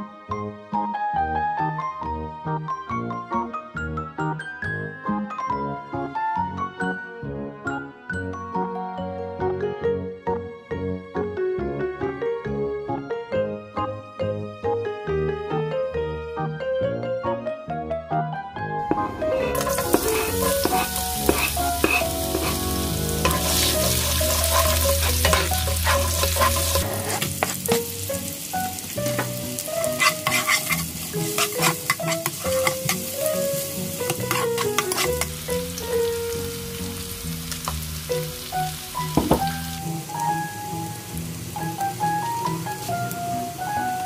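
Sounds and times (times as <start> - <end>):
metal spoon scraping pan: 18.9 - 27.9, 29.1 - 35.4
garlic sizzling in oil: 18.9 - 44.0.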